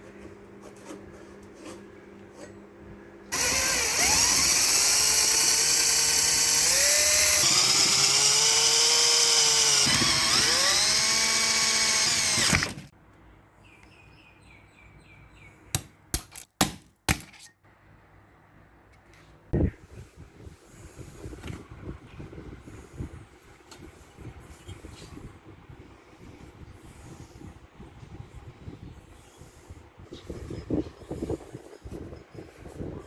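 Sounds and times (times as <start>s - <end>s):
power drill running: 3.3s - 12.9s.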